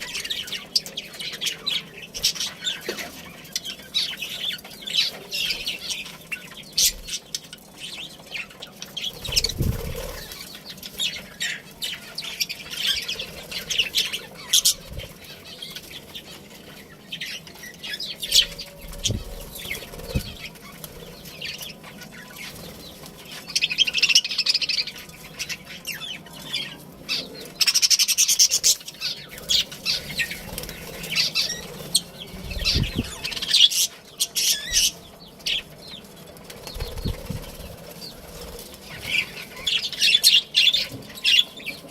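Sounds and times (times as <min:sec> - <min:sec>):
budgerigars chirping and chattering: 0:00.0 - 0:41.9
wings flapping: 0:09.1 - 0:10.6, 0:18.3 - 0:23.7, 0:29.4 - 0:33.9, 0:36.2 - 0:40.0.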